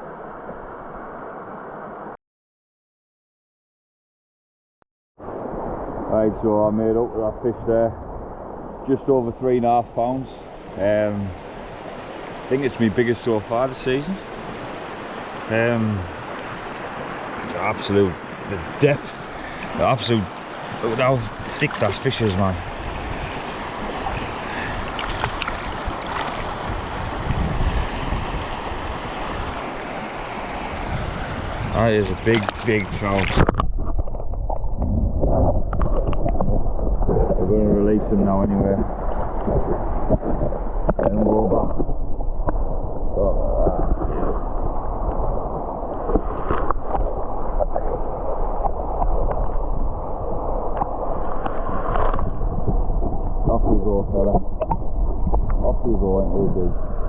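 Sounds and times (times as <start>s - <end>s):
river water rushing: 10.2s - 33.4s
wind buffeting microphone: 19.2s - 57.0s
light knocks or splashes: 20.5s - 22.6s, 24.0s - 27.4s, 31.8s - 33.9s.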